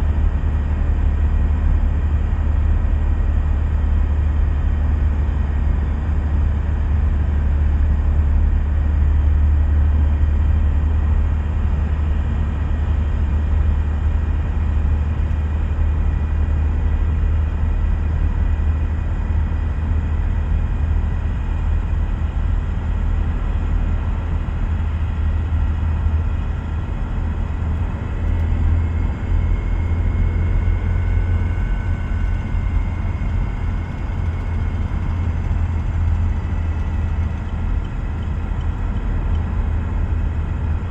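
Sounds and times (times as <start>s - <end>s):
engine and tyre drone: 20.2s - 40.9s
gearbox whine: 22.8s - 40.9s.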